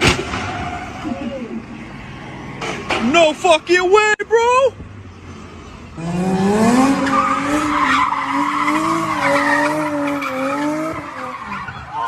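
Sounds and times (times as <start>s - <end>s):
tyres skidding: 0.0s - 12.0s
car engine at high revs: 4.8s - 12.0s.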